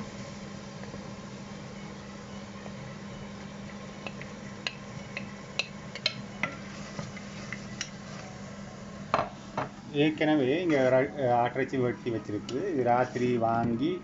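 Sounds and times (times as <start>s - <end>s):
onions frying in oil: 0.0s - 14.0s
steady low hum: 0.0s - 14.0s
spoon stirring in a pan: 3.6s - 8.4s.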